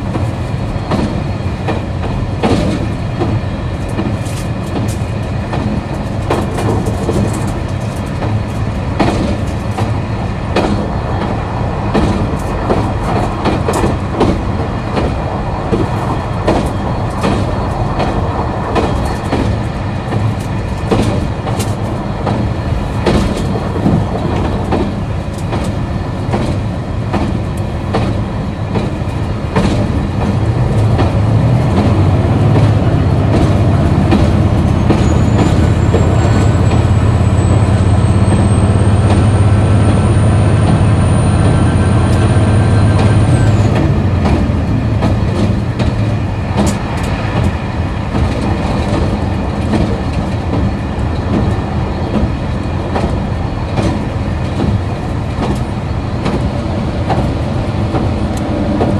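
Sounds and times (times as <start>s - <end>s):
wheels clicking over rail joints: 0.0s - 58.9s
diesel engine droning: 29.6s - 46.0s.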